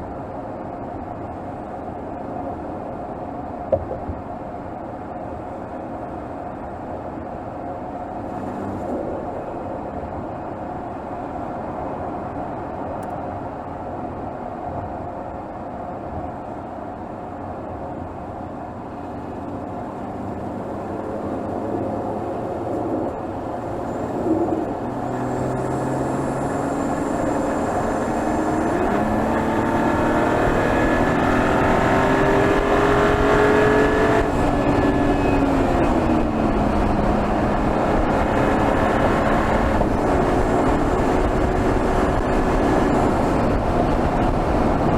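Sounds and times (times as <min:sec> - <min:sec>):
car engine accelerating: 0:08.2 - 0:09.3, 0:19.0 - 0:44.9.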